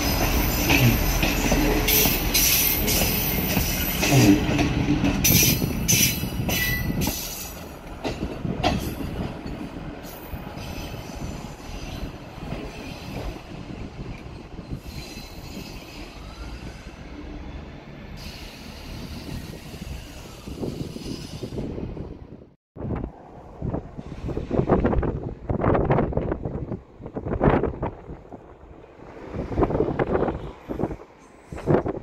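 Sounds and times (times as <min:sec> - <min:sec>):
wheels clacking over rail joints: 0:00.0 - 0:13.4
diesel train rumbling: 0:00.0 - 0:32.0.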